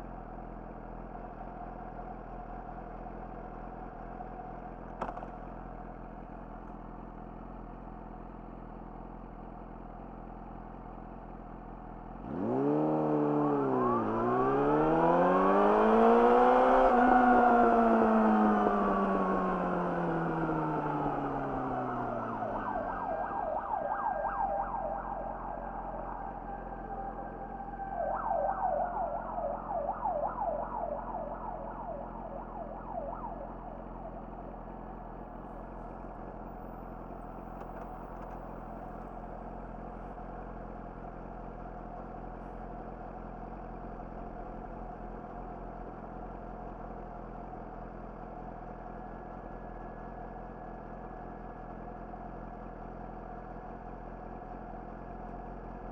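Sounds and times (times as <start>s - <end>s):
motorcycle engine idling: 0.0s - 12.2s, 17.8s - 55.8s
siren warbling: 13.0s - 34.8s.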